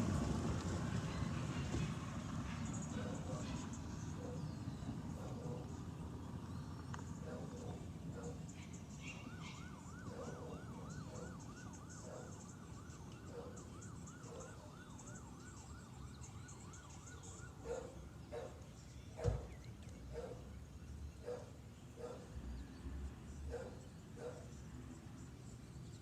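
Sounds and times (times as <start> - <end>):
city traffic hum: 0.0 - 26.0
faint siren yelping: 2.8 - 5.8, 7.2 - 19.5.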